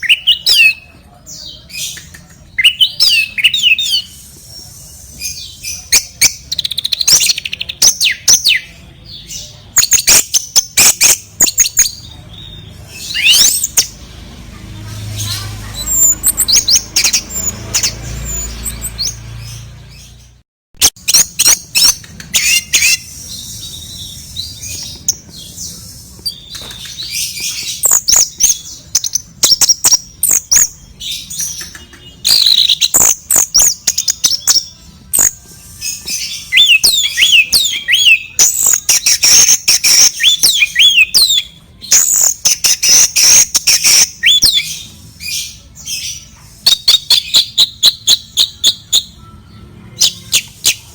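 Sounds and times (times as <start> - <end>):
bulbul chirps and harsh calls: 0.0 - 14.1, 14.9 - 49.2, 50.0 - 50.9
sharp clicks and knocks: 21.9 - 22.4.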